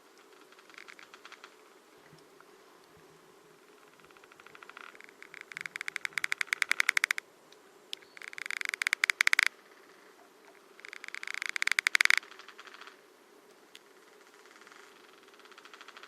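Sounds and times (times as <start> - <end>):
beetle larvae clicking: 4.4 - 7.2, 8.0 - 9.5, 10.8 - 12.8.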